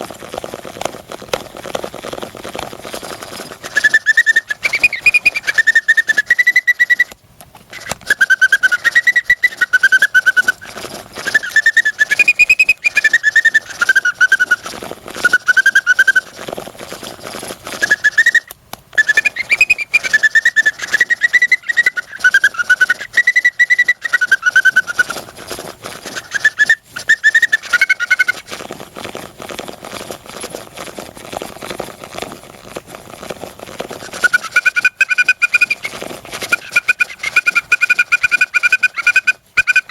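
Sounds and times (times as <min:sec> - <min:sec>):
bird organ whistle-like tune: 0:03.1 - 0:07.2, 0:07.8 - 0:16.4, 0:17.0 - 0:28.4, 0:34.1 - 0:39.9.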